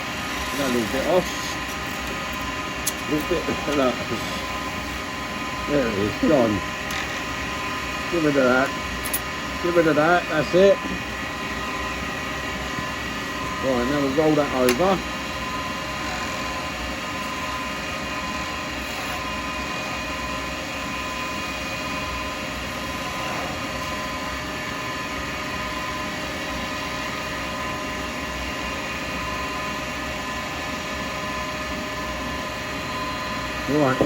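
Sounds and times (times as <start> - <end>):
wood lathe humming: 0.0 - 27.0.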